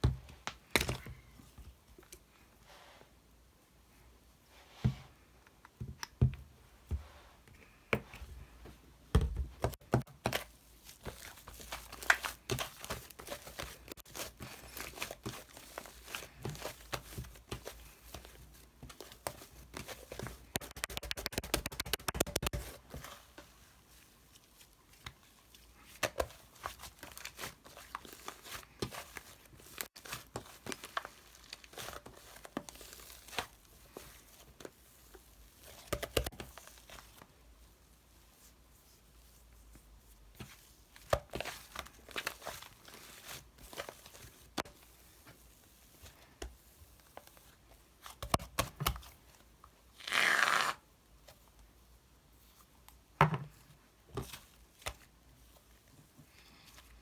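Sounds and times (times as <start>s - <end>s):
crinkling and tearing handling: 26.0s - 33.6s.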